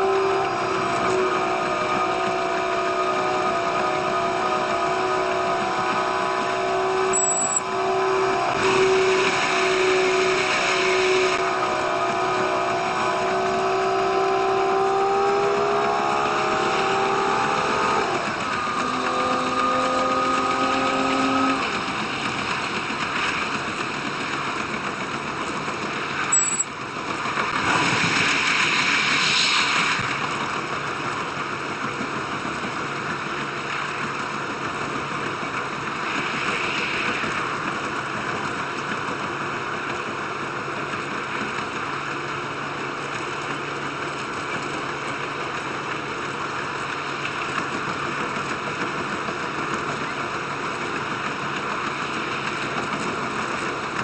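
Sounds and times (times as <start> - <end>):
diesel engine drone: 0.0 - 54.0
train running noise: 0.0 - 54.0
very high beeps: 7.1 - 7.7, 26.3 - 26.7.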